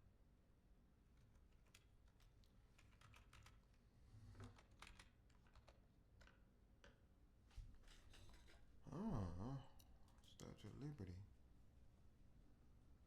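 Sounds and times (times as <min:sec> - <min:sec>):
typing on computer keyboard: 0:01.5 - 0:03.8, 0:04.4 - 0:06.4.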